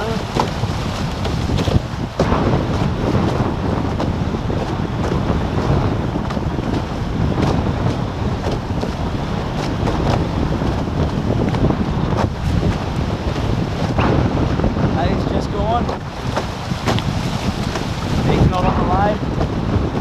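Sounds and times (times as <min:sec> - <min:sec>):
light water splashes: 0:00.0 - 0:04.4, 0:15.9 - 0:19.2
water rushing past hulls: 0:00.0 - 0:20.0
wind buffeting microphone: 0:00.0 - 0:20.0.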